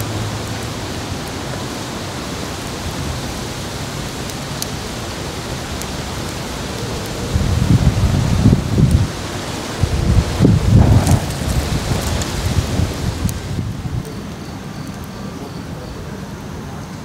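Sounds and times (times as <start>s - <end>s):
steady hissing noise: 0.0s - 17.0s
wind buffeting microphone: 4.8s - 16.1s.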